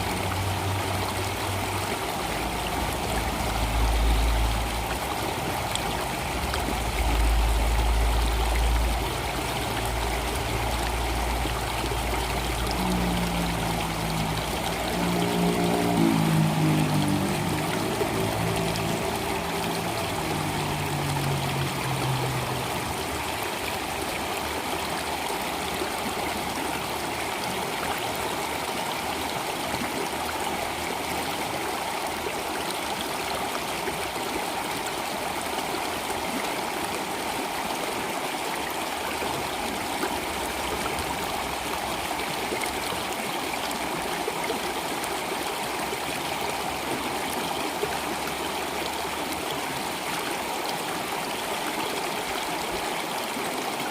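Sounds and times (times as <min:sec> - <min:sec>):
stream water flowing: 0:00.0 - 0:53.9
low pitched tone: 0:10.0 - 0:23.8.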